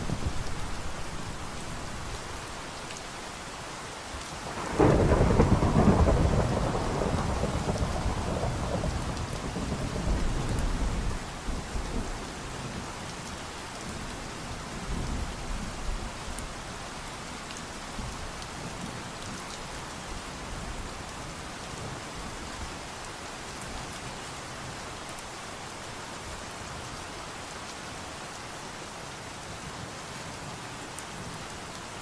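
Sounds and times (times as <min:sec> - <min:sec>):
steady rain falling: 0:00.0 - 0:32.0
thunderclap rumbling: 0:04.5 - 0:11.0.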